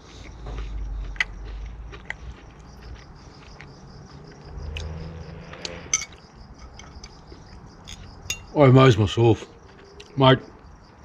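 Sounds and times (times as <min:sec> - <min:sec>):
person chewing: 0:00.0 - 0:08.3
insects chirring: 0:00.0 - 0:11.0.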